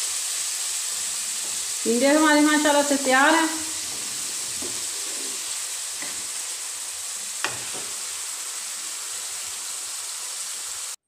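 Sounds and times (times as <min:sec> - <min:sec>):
curry sizzling in a pan: 0:00.0 - 0:11.0
spatula knocking against pan: 0:07.4 - 0:07.9.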